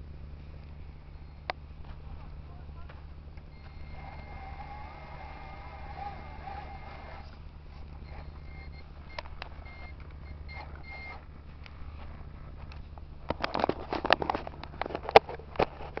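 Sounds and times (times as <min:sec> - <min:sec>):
low engine-like hum: 0:00.0 - 0:16.0
short repeated beeps: 0:08.0 - 0:11.2.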